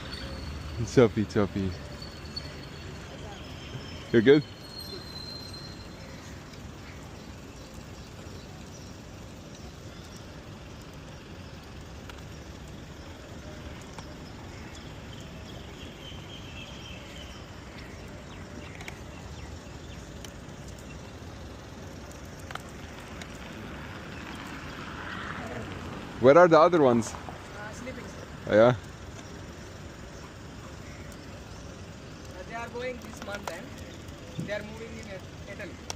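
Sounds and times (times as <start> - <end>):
low city rumble: 0.0 - 35.9
faint ticks: 6.0 - 15.6, 17.1 - 26.0, 26.7 - 35.9.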